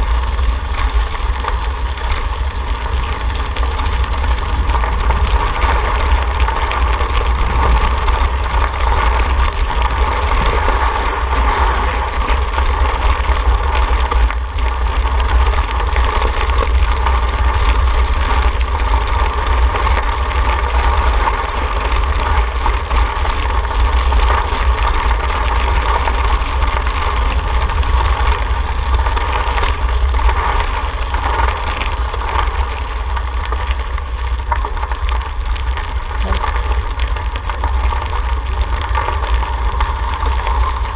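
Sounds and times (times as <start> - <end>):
wind rumble on microphone: 0.0 - 40.9
road noise: 1.4 - 15.5.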